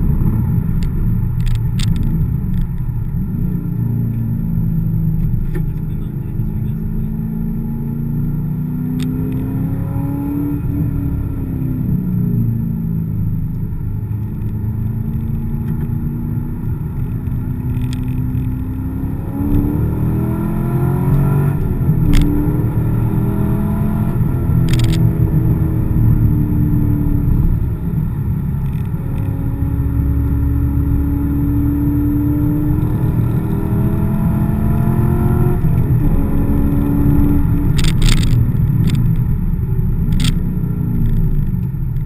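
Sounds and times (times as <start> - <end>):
car engine accelerating: 0.0 - 42.0
sharp clicks: 0.8 - 2.8, 24.6 - 25.1, 37.4 - 39.3, 40.1 - 40.4.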